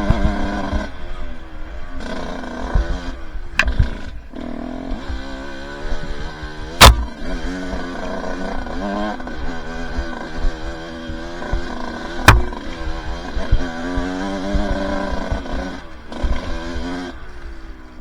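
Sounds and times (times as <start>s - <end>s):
two-stroke dirt bike engine revving: 0.0s - 18.0s
sharp knock: 3.6s - 3.9s, 6.8s - 7.2s, 12.2s - 12.7s.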